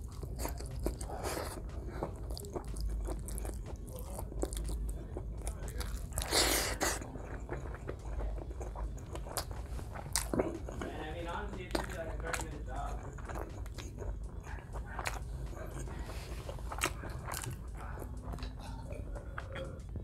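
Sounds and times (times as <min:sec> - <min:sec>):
man chewing with wet mouth sounds: 0:00.0 - 0:20.0.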